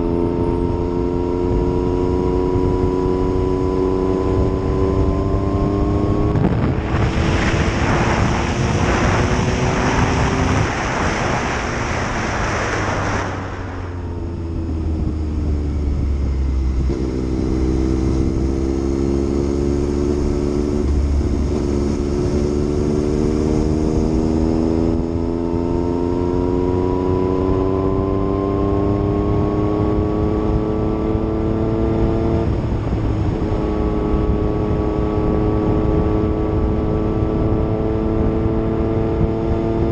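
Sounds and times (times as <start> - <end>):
motorcycle engine accelerating: 0.0 - 39.9
loud rushing noise: 6.3 - 14.5.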